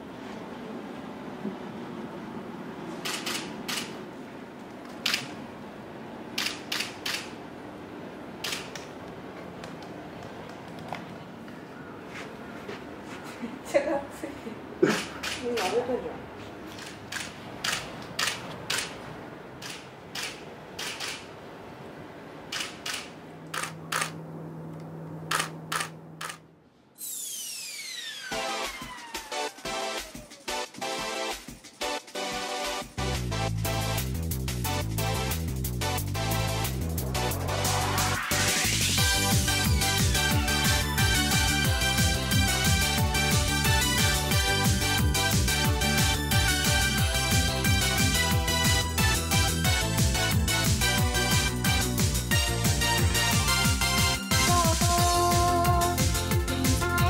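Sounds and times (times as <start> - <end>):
camera shutter firing: 3.0 - 4.0, 5.0 - 5.3, 6.4 - 7.3, 8.4 - 8.8, 16.8 - 19.0, 19.6 - 21.3, 22.5 - 24.2, 25.3 - 26.4
faint steady hum: 17.4 - 30.4
falling electronic sweep: 27.0 - 30.7, 37.1 - 39.7
music: 28.2 - 57.0.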